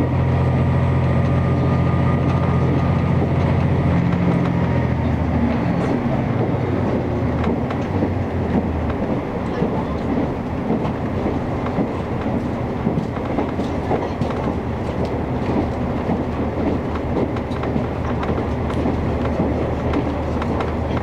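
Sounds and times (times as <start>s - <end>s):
clickety-clack of rail joints: 0.0s - 21.0s
railcar engine hum: 0.0s - 21.0s
wheels rumbling on rails: 0.0s - 21.0s.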